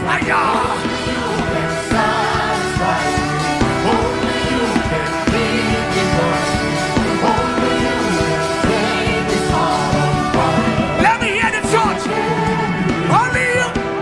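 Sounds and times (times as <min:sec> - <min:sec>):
drums: 0:00.0 - 0:14.0
keyboard chords: 0:00.0 - 0:14.0.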